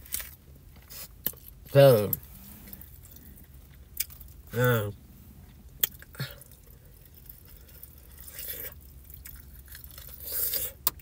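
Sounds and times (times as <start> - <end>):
wet chewing and lip smacks: 2.7 - 4.5, 5.5 - 11.0.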